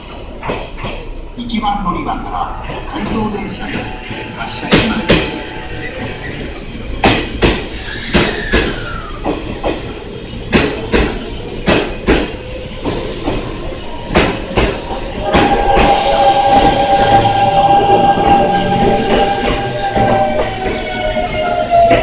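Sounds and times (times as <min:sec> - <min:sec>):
falling whine: 0:14.9 - 0:20.8.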